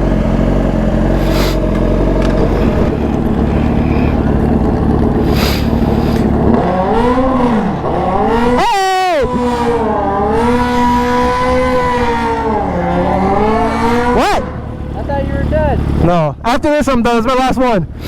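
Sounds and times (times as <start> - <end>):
engine idling and revving: 0.0 - 18.0.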